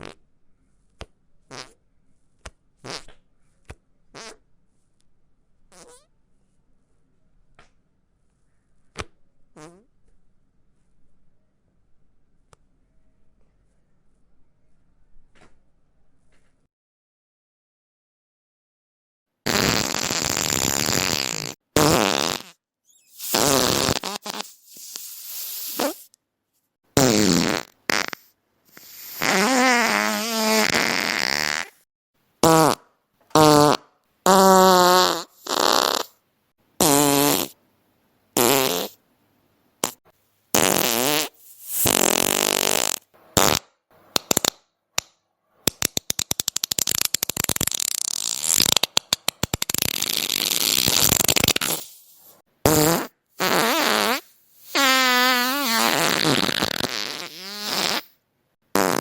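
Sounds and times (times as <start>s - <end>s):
fart sound effects: 0.0s - 0.2s, 1.5s - 1.8s, 2.8s - 3.2s, 4.2s - 4.4s, 5.7s - 6.1s, 9.6s - 9.9s, 19.4s - 26.1s, 27.0s - 31.8s, 32.4s - 36.2s, 36.8s - 37.6s, 38.4s - 39.0s, 40.6s - 44.5s, 45.8s - 59.0s.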